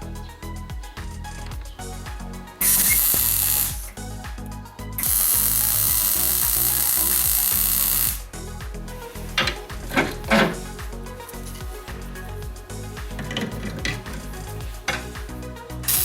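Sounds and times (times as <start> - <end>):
background music with a beat: 0.0 - 16.0
power tool running: 2.6 - 3.8, 5.0 - 8.2.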